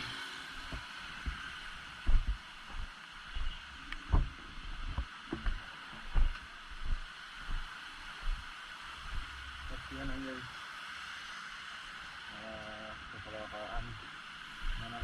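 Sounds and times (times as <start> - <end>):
heavy rain hissing: 0.0 - 15.0
low thumps on microphone: 2.0 - 7.6.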